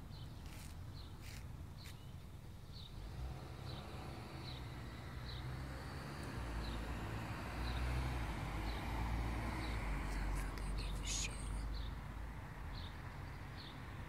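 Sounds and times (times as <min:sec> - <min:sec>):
small bird chirping: 0:00.1 - 0:03.0
car passing on street: 0:02.8 - 0:14.0.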